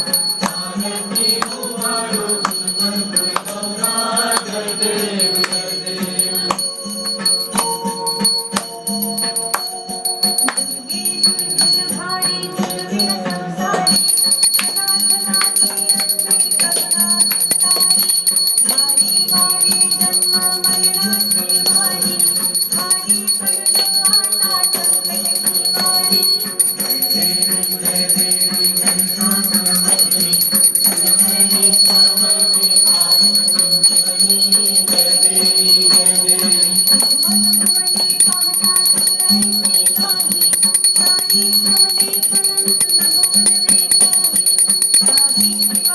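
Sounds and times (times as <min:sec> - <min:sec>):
devotional music: 0:00.0 - 0:45.9
high ringing tones: 0:00.0 - 0:45.9
jingling hand percussion: 0:00.0 - 0:45.9.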